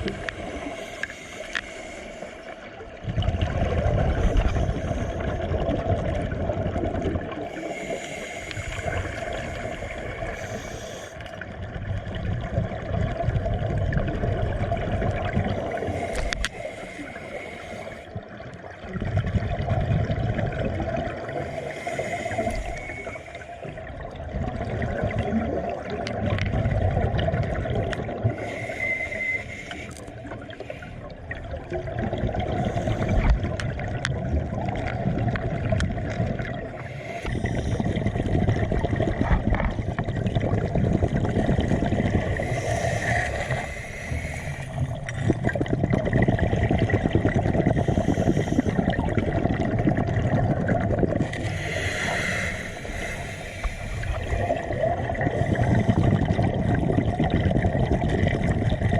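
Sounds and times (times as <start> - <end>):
water gurgling and trickling: 0.0 - 58.9.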